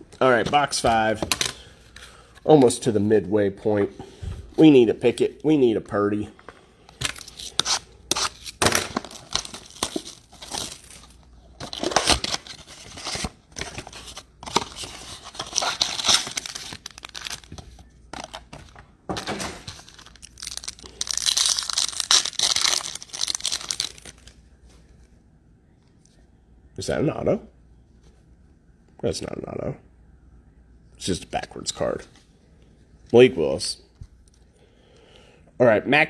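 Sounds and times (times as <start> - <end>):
wrappers crinkling and ripping: 7.0 - 18.5, 19.6 - 24.4.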